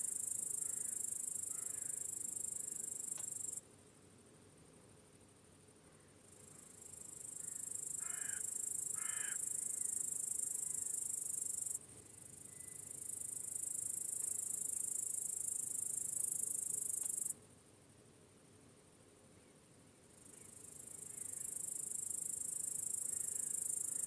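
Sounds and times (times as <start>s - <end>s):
shrill insect chorus: 0.0s - 3.6s, 6.3s - 17.3s, 20.2s - 24.0s.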